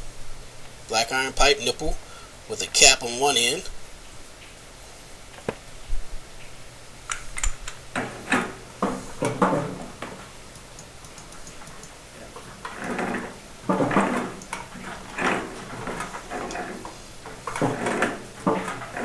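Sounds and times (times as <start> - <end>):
sharp metal clicks: 10.5 - 12.0
threaded pipe fittings scraping: 11.2 - 19.0.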